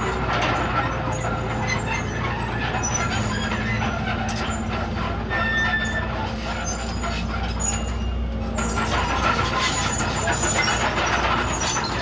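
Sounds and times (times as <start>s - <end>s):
bulldozer diesel engine running: 0.0s - 12.0s
high squeaks and clinks: 6.6s - 12.0s.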